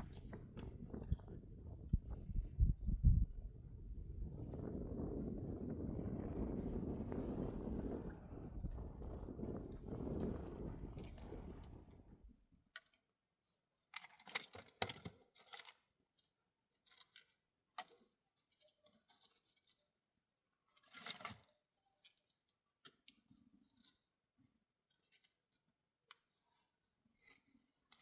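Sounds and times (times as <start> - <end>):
low wind rush on microphone: 0.0 - 12.4
faint handling clicks and rustling: 13.9 - 20.1, 20.7 - 28.0.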